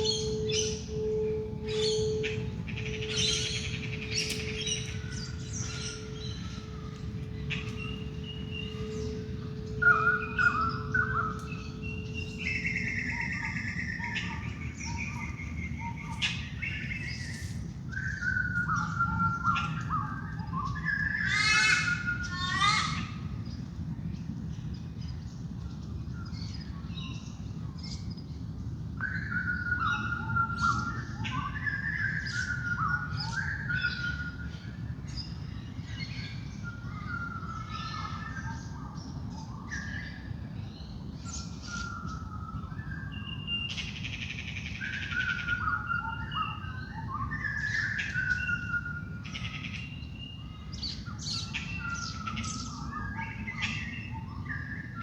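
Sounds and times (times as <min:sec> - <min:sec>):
singing bowl tone: 0:00.0 - 0:17.2
birds singing and calling: 0:00.0 - 0:55.0.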